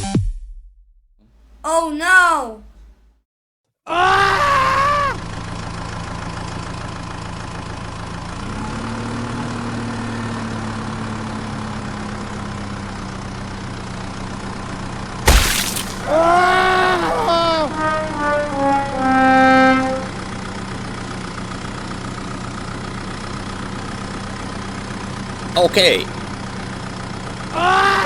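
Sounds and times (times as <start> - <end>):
voice-like cry: 1.6 - 2.7, 27.6 - 28.0.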